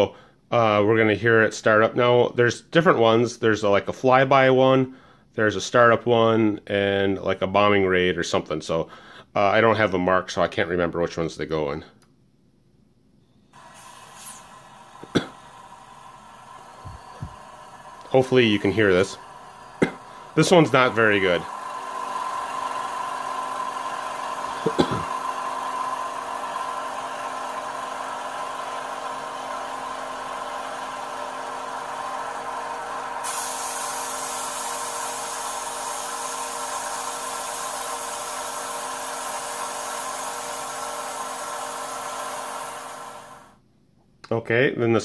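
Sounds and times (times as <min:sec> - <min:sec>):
hissy rush: 0:13.6 - 0:43.5.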